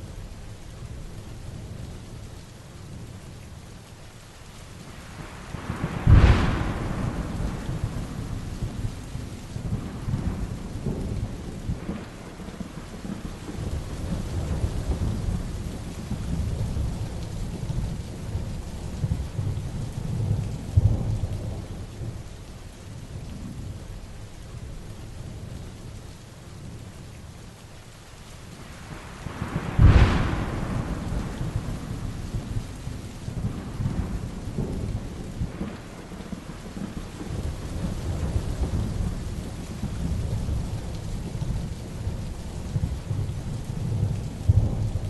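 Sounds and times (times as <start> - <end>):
heavy rain: 0.0 - 45.0
low thunder rumbling: 5.0 - 22.4, 28.6 - 45.0
thunderclap: 5.3 - 18.0, 28.8 - 45.0.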